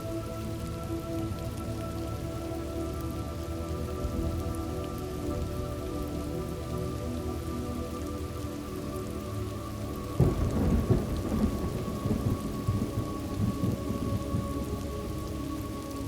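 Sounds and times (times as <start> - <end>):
steady rain: 0.0 - 16.0
thunder rumbling: 10.1 - 15.3.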